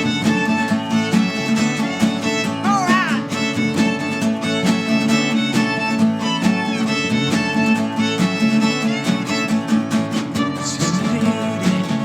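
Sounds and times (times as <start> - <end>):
sliding melody line: 0.0 - 9.6.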